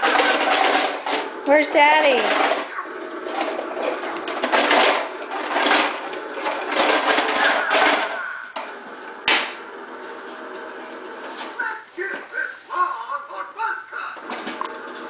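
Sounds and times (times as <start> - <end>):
toy lawn mower clattering: 0.0 - 8.8, 13.9 - 15.0.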